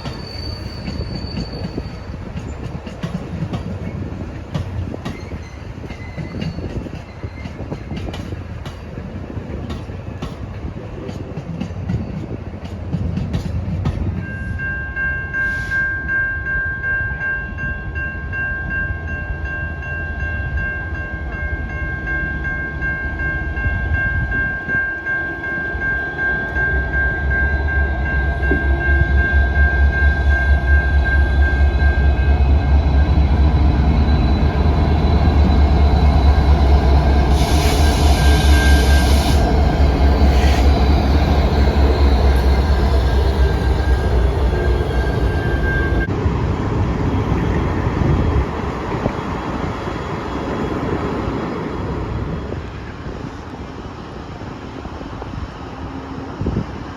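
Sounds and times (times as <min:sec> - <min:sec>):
freight train passing: 0:00.0 - 0:56.9
steady high-pitched tone: 0:18.8 - 0:47.8.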